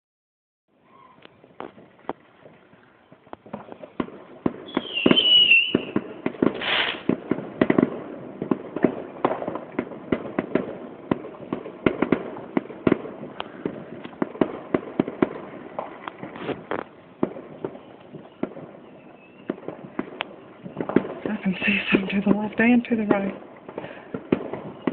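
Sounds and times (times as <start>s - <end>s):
fireworks bangs and crackles: 1.2s - 24.9s
firework whistle: 4.6s - 7.2s, 17.6s - 22.0s, 23.8s - 24.9s.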